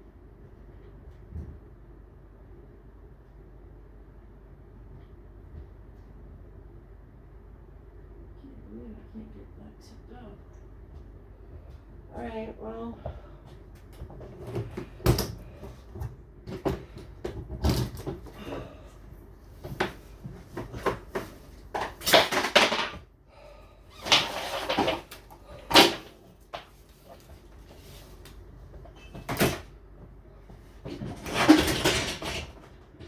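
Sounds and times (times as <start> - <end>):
refrigerator knocking and bumping: 16.0 - 18.7
refrigerator scraping: 23.9 - 29.7.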